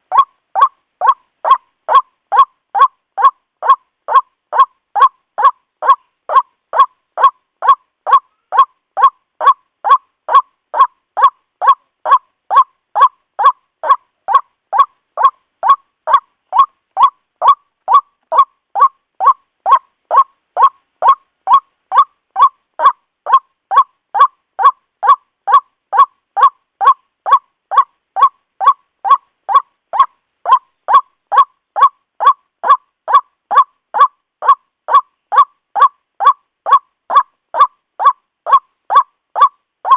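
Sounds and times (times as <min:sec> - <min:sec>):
waterhen call recording: 0:00.0 - 0:39.9.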